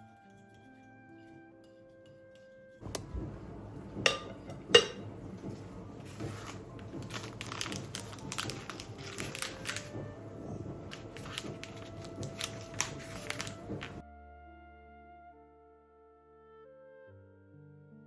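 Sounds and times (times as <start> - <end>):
light crinkling and clicking: 6.1 - 10.2, 10.9 - 14.0.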